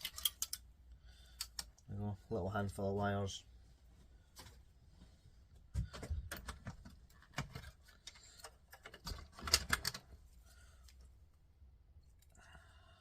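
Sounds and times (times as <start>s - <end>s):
plastic and metal parts clicking: 0.0s - 0.7s, 5.9s - 10.2s.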